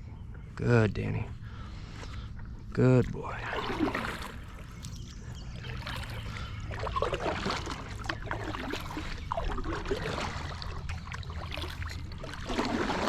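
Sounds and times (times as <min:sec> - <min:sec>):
steady low hum: 0:00.0 - 0:13.0
paddle splashing water: 0:03.3 - 0:13.0.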